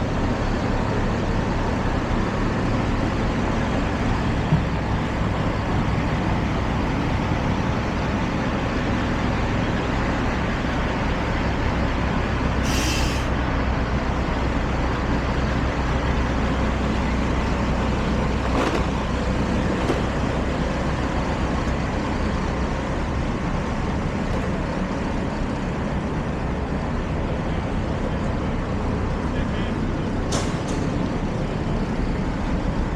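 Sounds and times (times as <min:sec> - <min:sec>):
low engine rumble: 0:00.0 - 0:32.9
street traffic noise: 0:00.0 - 0:32.9
short high hiss: 0:12.6 - 0:13.4.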